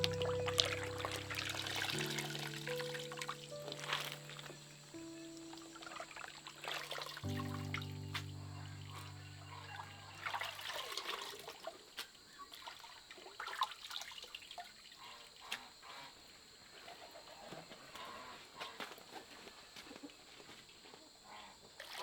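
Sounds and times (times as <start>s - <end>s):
held music note: 0.0s - 10.6s
water trickling and splashing: 0.0s - 16.0s, 21.8s - 22.0s.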